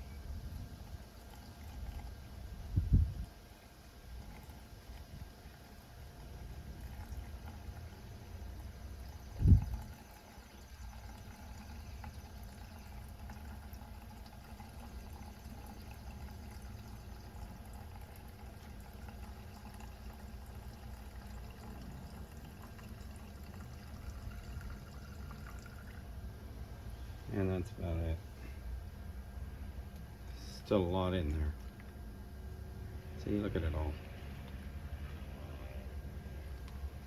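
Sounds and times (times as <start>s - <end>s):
liquid pouring into container: 0.8s - 26.3s, 30.4s - 32.1s.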